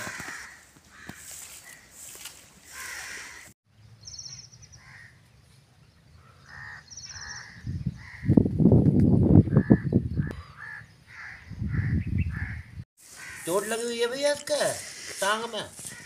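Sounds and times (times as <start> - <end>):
birds calling: 0.0 - 8.5, 9.4 - 16.0.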